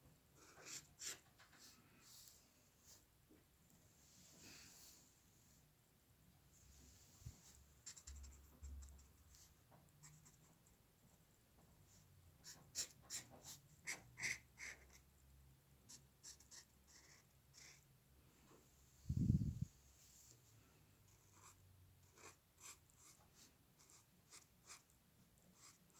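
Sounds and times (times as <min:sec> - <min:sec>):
drawing tool scratching on paper: 0:00.5 - 0:01.8, 0:12.4 - 0:15.0, 0:21.2 - 0:24.9, 0:25.6 - 0:25.9.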